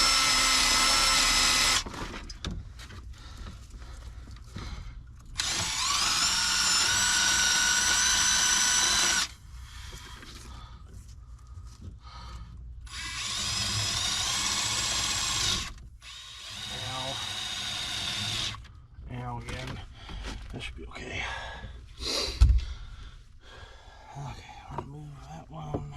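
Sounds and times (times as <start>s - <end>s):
power drill whining: 0.0s - 2.5s, 5.2s - 9.4s, 12.8s - 18.7s.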